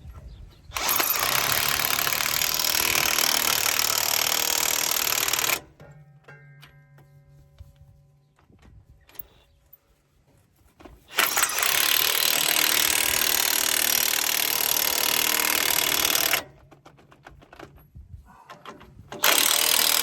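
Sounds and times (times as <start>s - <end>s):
power tool running: 0.7s - 5.7s, 11.1s - 16.6s, 19.2s - 20.0s.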